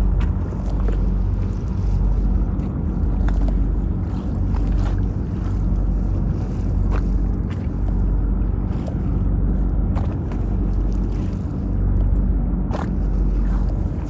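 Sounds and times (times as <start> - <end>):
boat engine humming: 0.0 - 14.0
wind on microphone: 0.0 - 14.0.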